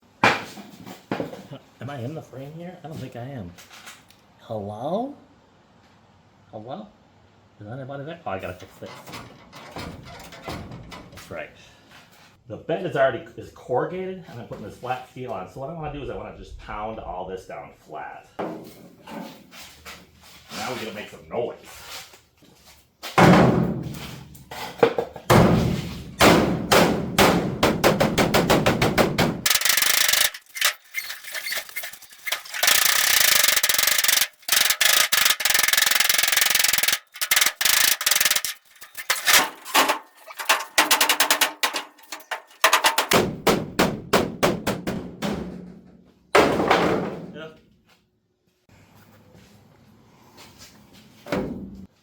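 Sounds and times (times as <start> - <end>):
hammer pounding steel: 25.3 - 45.7.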